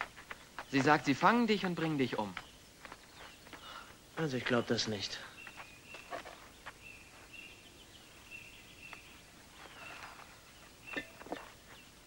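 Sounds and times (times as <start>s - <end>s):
faint birdsong chirps: 0.0s - 12.0s.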